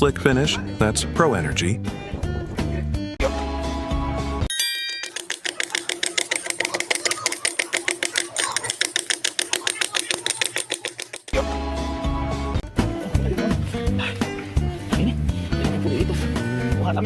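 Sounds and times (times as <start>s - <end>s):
machine tapping rapidly: 4.9s - 11.4s.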